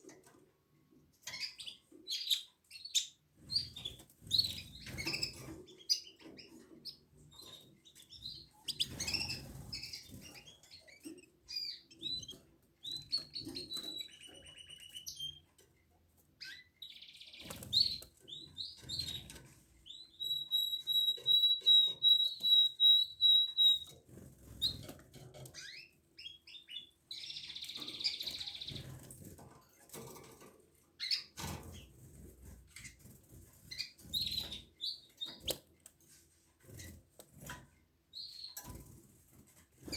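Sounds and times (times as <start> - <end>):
canaries chirping: 0.0 - 39.9.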